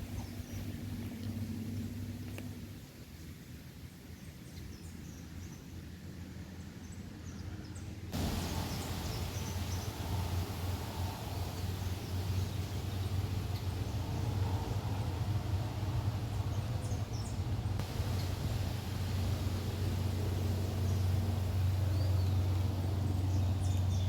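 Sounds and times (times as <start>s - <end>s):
loud hiss: 8.2s - 24.0s
low rumble: 8.2s - 24.0s.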